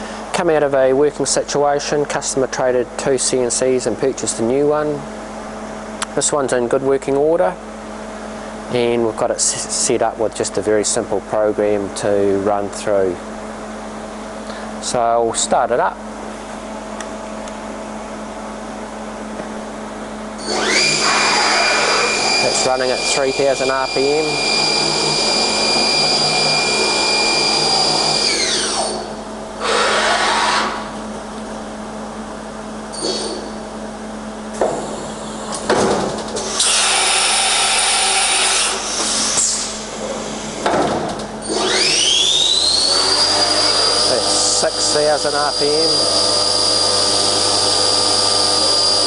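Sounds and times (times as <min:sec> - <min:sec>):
machine hum: 0:02.4 - 0:49.0
spindle whine: 0:20.4 - 0:31.7.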